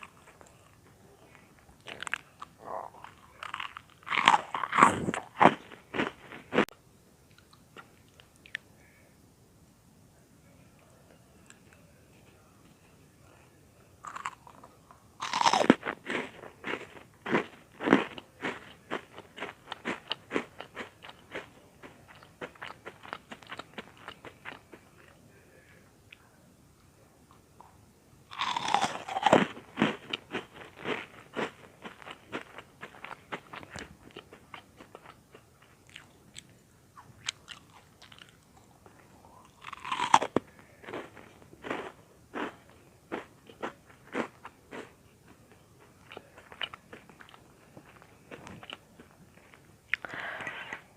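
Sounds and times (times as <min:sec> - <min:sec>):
crunching bread cubes: 0:01.8 - 0:06.7, 0:14.0 - 0:25.1, 0:28.3 - 0:36.1, 0:39.4 - 0:45.4.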